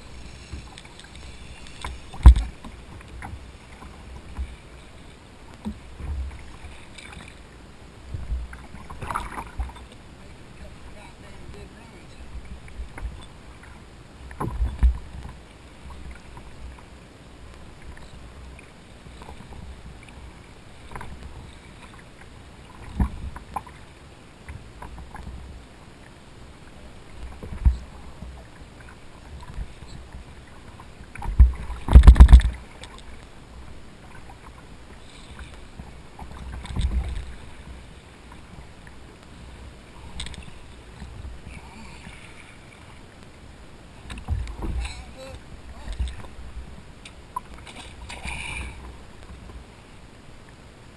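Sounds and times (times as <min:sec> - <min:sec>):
wind: 0:00.0 - 0:50.9
thumps against kayak hull: 0:02.1 - 0:03.3, 0:31.2 - 0:32.6, 0:44.1 - 0:45.0.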